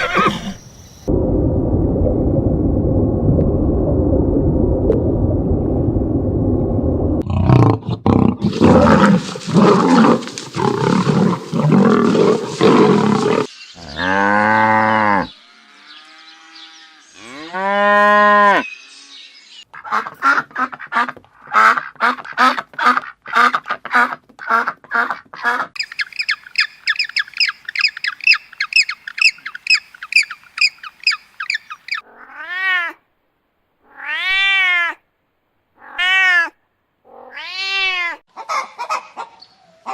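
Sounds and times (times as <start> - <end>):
long drawn-out pitched calls: 25.8 - 32.8
cat meowing: 37.1 - 38.2.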